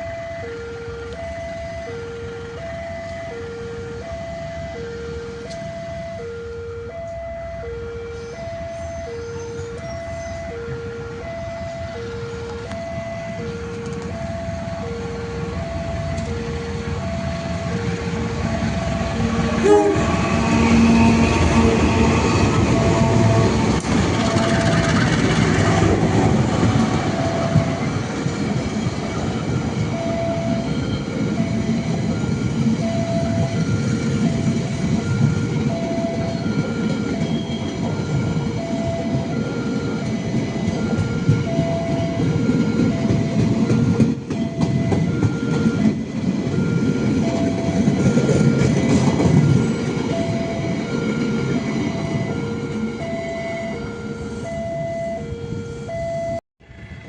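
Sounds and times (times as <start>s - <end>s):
two-tone crossing alarm ding: 0.0s - 28.1s, 29.4s - 56.4s
train wheels rumbling and clacking: 13.6s - 53.1s.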